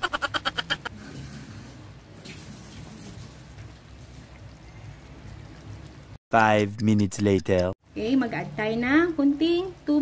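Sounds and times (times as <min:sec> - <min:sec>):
laughter sound effect: 0:00.0 - 0:00.9.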